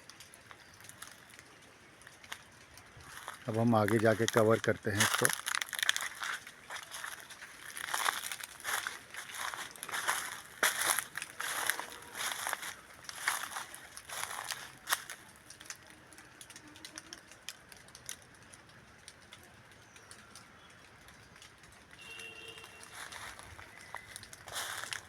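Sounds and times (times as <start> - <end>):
small leaf crackles: 0.0 - 25.0
footsteps crunching on dry leaves: 3.0 - 15.7, 22.5 - 25.0.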